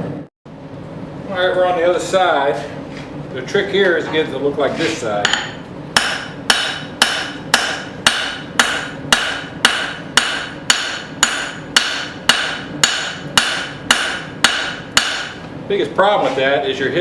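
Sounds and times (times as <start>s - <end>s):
hammer striking steel on anvil: 5.2s - 15.4s.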